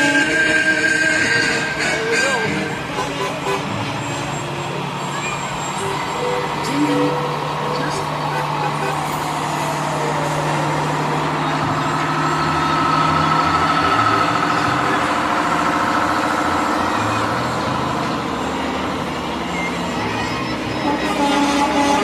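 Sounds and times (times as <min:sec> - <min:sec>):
heavy trucks driving past: 0:00.0 - 0:22.0.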